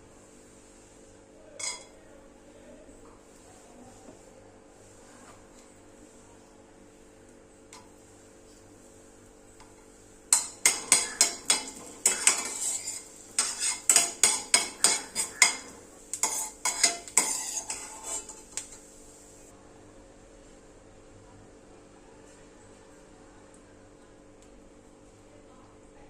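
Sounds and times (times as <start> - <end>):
metal spoon scraping a pan: 1.6 - 2.0, 10.3 - 19.0.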